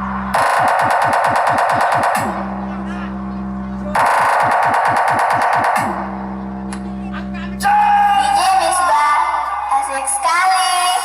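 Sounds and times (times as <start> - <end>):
low bass note: 0.0 - 0.4, 2.1 - 4.2, 5.7 - 9.7.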